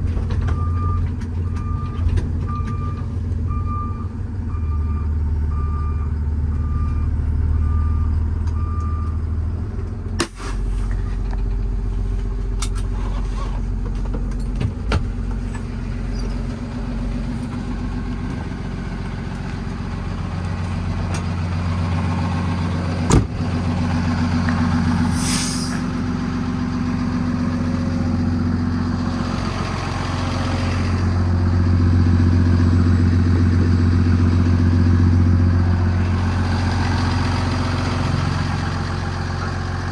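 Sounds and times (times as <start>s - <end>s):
truck diesel engine running: 0.0s - 39.9s
reverse alarm beeping: 0.5s - 9.2s
short hiss of air: 24.9s - 25.9s.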